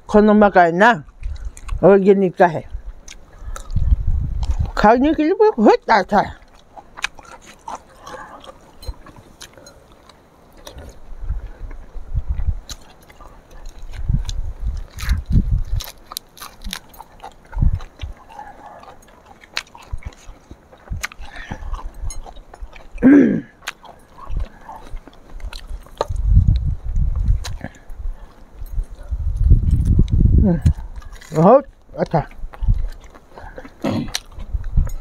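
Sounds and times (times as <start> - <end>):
biting and chewing: 0.4 - 35.0
crunchy food clicks: 1.0 - 35.0
dull low thumps: 2.7 - 5.2, 10.9 - 12.7, 13.9 - 15.8, 26.0 - 31.0, 32.2 - 35.0
person humming: 23.0 - 23.5.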